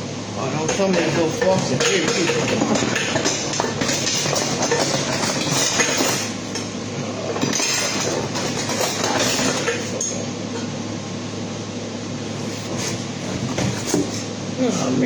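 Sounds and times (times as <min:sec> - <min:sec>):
steady low hum: 0:00.0 - 0:15.0
kitchen items clattering: 0:00.6 - 0:10.7, 0:12.6 - 0:14.2.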